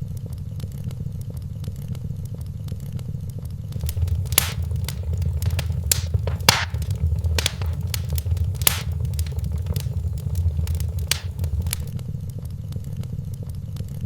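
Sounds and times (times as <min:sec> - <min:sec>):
fire crackling and popping: 0:03.8 - 0:11.9
flames rumbling: 0:03.8 - 0:11.9.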